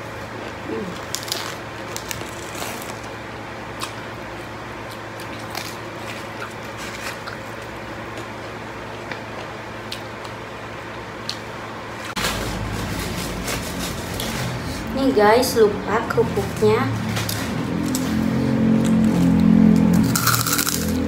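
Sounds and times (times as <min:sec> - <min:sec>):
chewing raw vegetables: 0:00.2 - 0:14.9
lettuce leaves tearing: 0:00.8 - 0:03.2.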